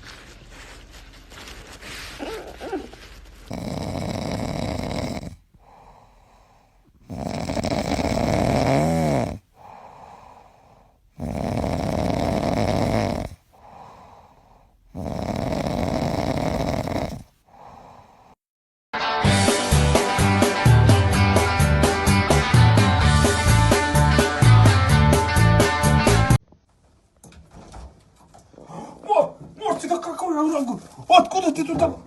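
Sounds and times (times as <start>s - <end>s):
pet snoring loudly: 3.5s - 6.4s, 7.0s - 18.4s.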